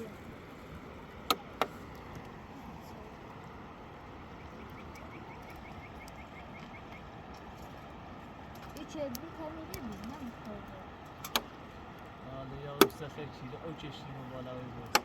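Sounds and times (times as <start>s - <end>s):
faint high chirps: 4.3s - 7.1s.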